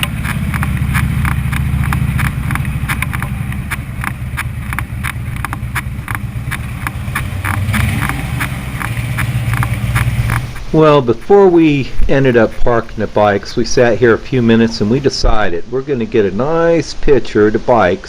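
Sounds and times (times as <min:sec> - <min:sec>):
quick regular ticking: 0:00.0 - 0:10.8
motorcycle engine rumbling: 0:00.0 - 0:16.5.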